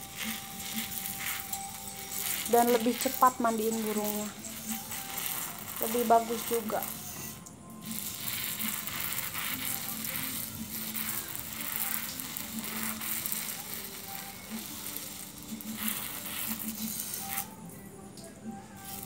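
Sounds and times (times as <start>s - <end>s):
pressure sprayer hissing: 0.0s - 17.5s.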